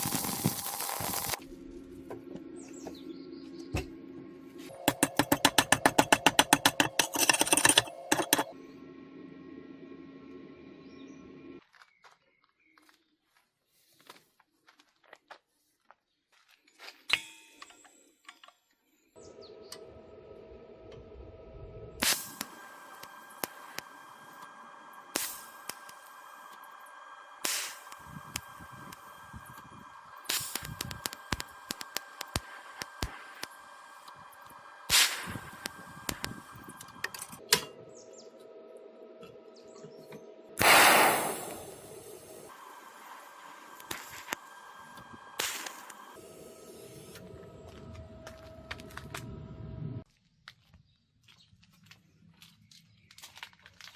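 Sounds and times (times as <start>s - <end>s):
loud burst of hissing: 0.0s - 1.4s, 27.4s - 29.6s, 34.9s - 36.4s, 40.6s - 44.5s
machine humming: 0.0s - 11.6s, 19.2s - 50.0s
metal clank with ring: 17.1s - 17.8s.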